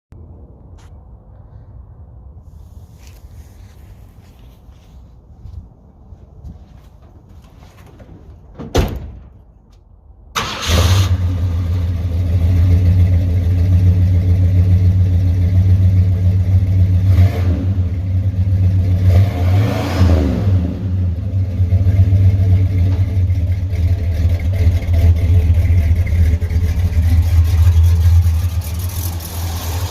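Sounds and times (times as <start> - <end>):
car engine starting and idling: 6.7 - 19.1, 20.0 - 29.9
engine revving: 16.6 - 29.9.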